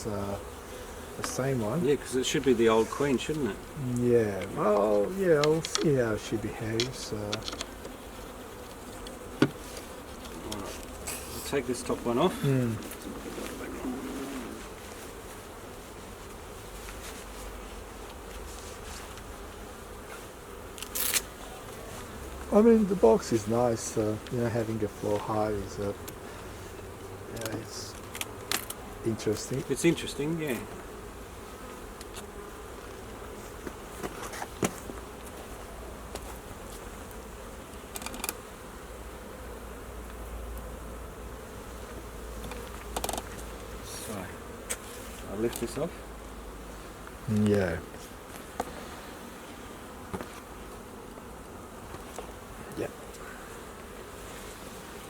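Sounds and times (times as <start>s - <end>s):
honeybees buzzing: 0.0s - 55.0s
hive parts clicking and knocking: 4.4s - 6.0s, 6.8s - 8.0s, 37.8s - 38.4s, 42.4s - 43.4s.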